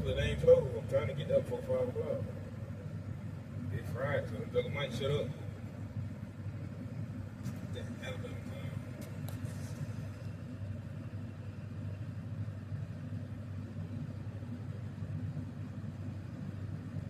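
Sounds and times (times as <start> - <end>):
road noise inside car: 0.0 - 17.0
vehicle engine drone: 0.0 - 17.0.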